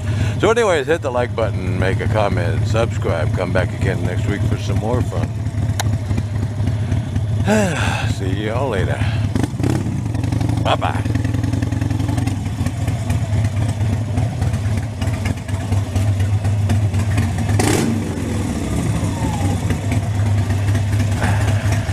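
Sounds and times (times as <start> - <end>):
motorcycle engine running: 0.0 - 21.9.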